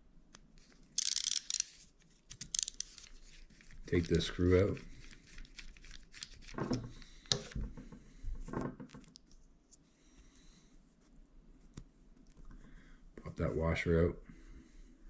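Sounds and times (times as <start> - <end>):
screw clicking and scraping: 1.0 - 3.7
metal and plastic parts tapping: 2.3 - 3.1.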